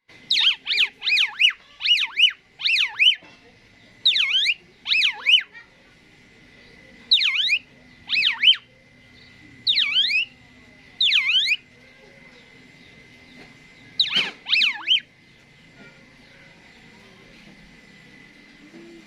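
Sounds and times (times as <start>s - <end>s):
starling whistled calls: 0.2s - 3.3s, 4.0s - 5.7s, 6.6s - 10.4s, 11.0s - 16.8s.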